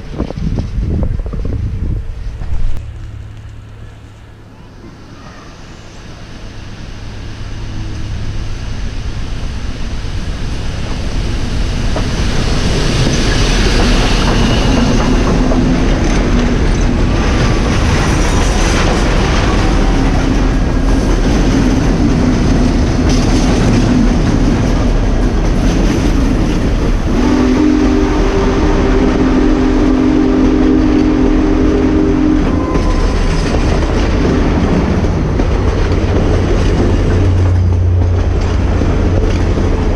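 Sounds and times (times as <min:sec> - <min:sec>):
steam train passing: 0:00.0 - 0:39.9
steam whistle chord: 0:27.1 - 0:33.1.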